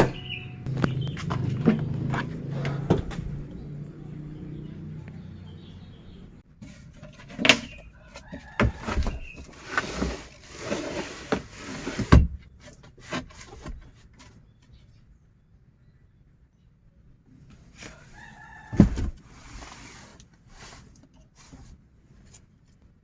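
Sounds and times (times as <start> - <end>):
knocks and clunks of objects: 0.0 - 3.7, 6.6 - 10.4, 17.8 - 19.3
low hum: 0.0 - 6.4.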